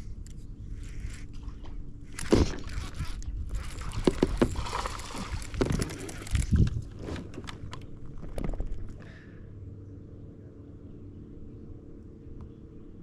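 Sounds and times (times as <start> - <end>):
water sloshing: 1.4 - 9.0.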